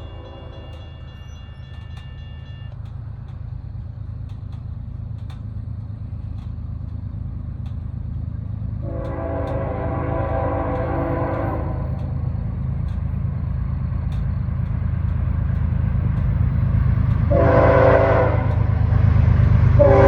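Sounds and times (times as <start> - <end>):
locomotive horn: 0.0 - 2.7, 8.8 - 12.2, 17.2 - 18.9, 19.7 - 20.0
sharp clicks: 0.0 - 7.0, 9.0 - 17.3
train rumbling: 0.0 - 20.0.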